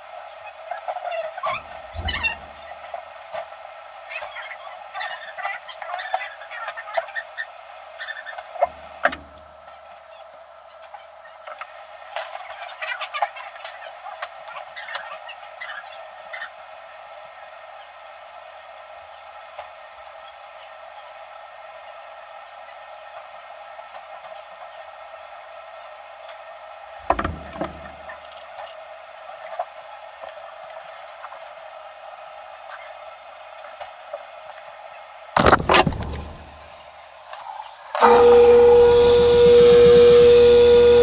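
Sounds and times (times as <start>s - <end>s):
knocks: 27.0s - 27.9s, 35.4s - 36.6s.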